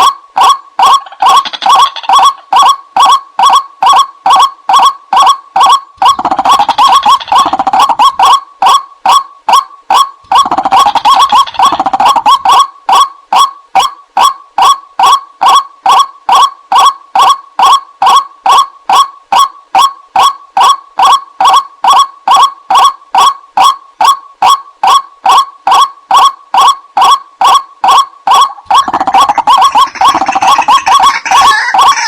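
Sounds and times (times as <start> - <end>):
waterhen croaking calls: 0.8 - 2.7, 28.3 - 32.0.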